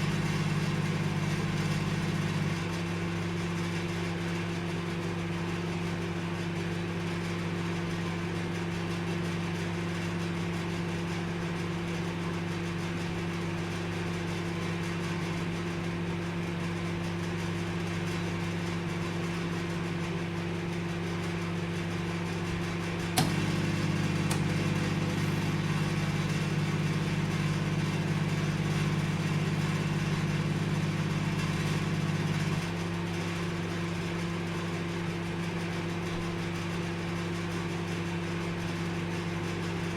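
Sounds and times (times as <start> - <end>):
microwave oven humming: 0.0 - 39.9
relay click: 23.2 - 23.5, 24.2 - 24.7.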